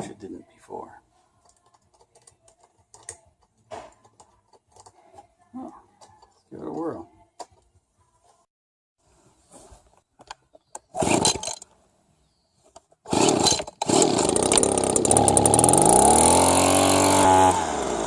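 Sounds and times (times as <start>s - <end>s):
leaf blower engine starting: 10.9s - 11.6s, 13.1s - 18.0s.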